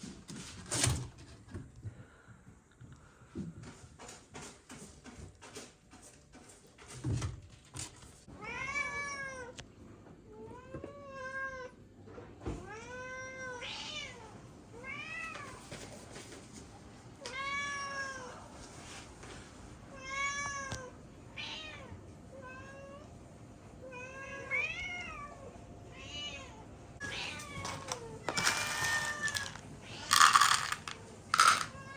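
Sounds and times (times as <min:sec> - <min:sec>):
cat meowing: 0:23.9 - 0:30.2.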